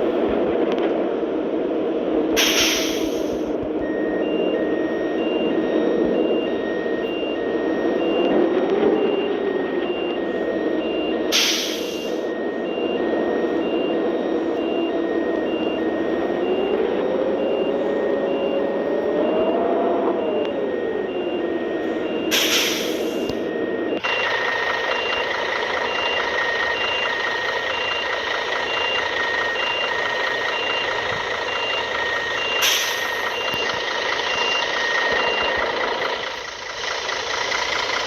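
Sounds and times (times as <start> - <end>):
vehicle engine running: 0.0 - 38.0
short loud hisses: 2.4 - 3.4
electronic warning beep: 2.4 - 38.0.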